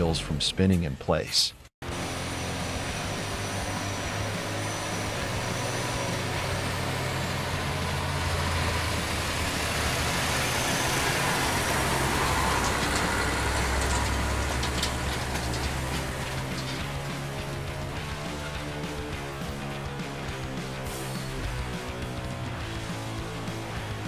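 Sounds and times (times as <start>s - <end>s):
truck engine running: 1.8s - 24.0s.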